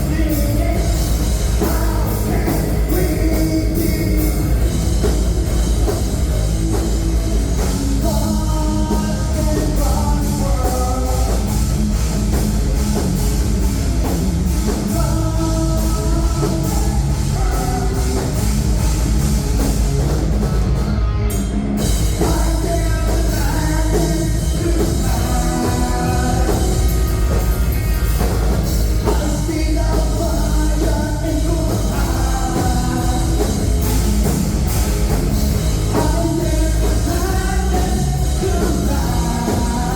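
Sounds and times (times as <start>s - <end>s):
person singing: 0.0s - 4.8s, 14.7s - 18.4s, 22.2s - 27.5s, 29.0s - 33.9s, 35.9s - 39.9s
bass guitar: 0.0s - 39.9s
drum kit: 0.0s - 39.9s
guitars: 0.0s - 39.9s.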